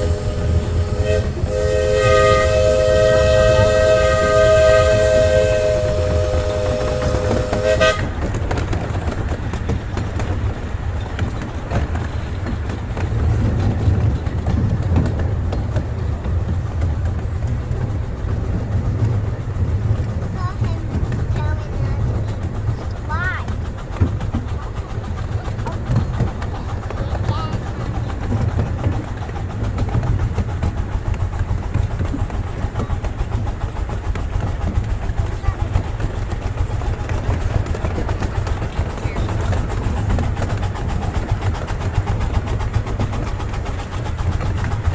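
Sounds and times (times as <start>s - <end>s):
steam whistle chord: 0.0s - 8.0s
train rumbling: 0.0s - 44.9s
wheels clicking on track: 0.0s - 44.9s.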